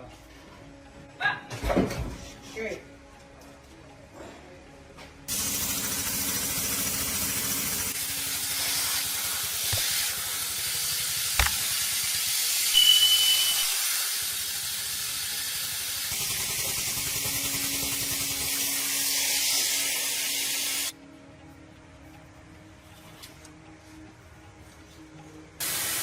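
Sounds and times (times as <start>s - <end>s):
high-pressure spray hissing: 5.3s - 20.9s, 25.6s - 26.0s
brief high whistle: 12.7s - 14.1s.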